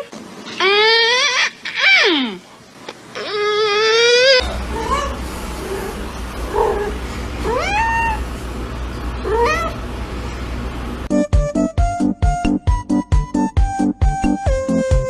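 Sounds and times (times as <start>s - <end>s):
cat meowing: 3.2s - 8.4s, 9.2s - 9.9s
steady low rumble: 4.4s - 11.1s.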